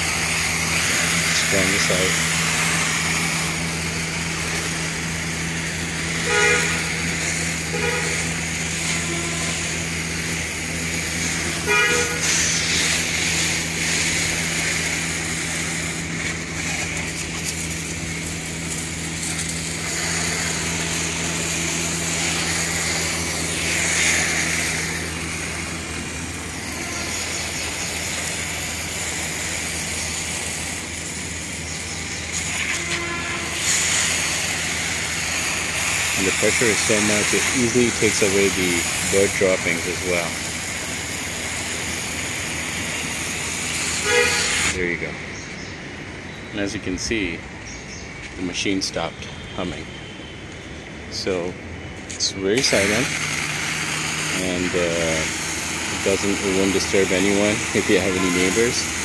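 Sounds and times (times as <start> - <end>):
pressure washer jet hissing: 0.0 - 46.2, 47.9 - 59.0
pump motor humming: 0.0 - 47.6, 49.0 - 59.0
short honk-like beeps: 44.0 - 44.7.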